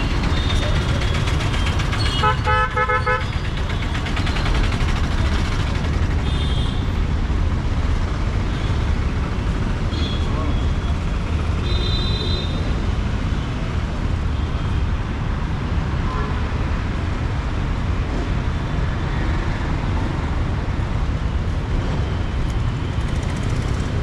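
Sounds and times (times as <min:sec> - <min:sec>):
city road traffic rumble: 0:00.0 - 0:24.0.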